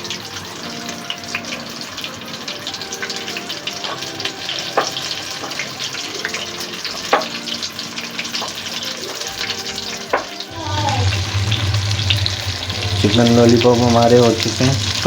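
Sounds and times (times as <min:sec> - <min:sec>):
oil bubbling and sizzling: 0:00.0 - 0:15.0
sharp pops of frying oil: 0:04.7 - 0:05.6, 0:06.4 - 0:07.5, 0:10.0 - 0:10.4.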